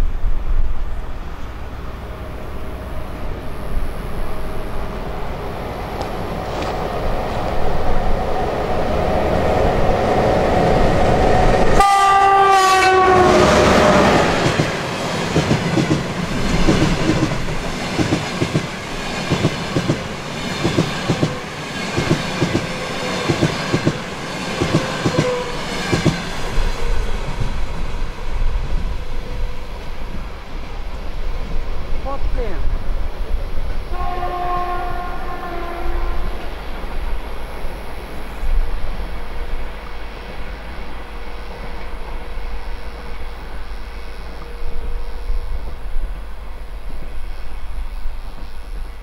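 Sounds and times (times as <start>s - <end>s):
electric locomotive passing: 0.0s - 49.0s
train horn blast: 11.7s - 14.3s, 33.9s - 36.5s
train wheels clattering on rail joints: 14.4s - 26.5s.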